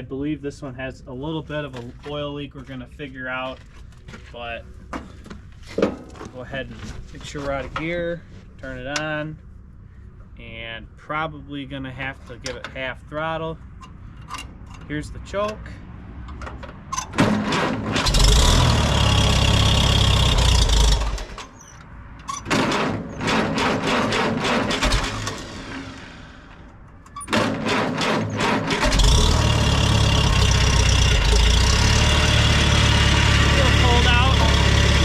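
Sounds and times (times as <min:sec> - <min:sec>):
engine starter cranking: 0:17.0 - 0:35.0
engine running steadily: 0:22.5 - 0:35.0.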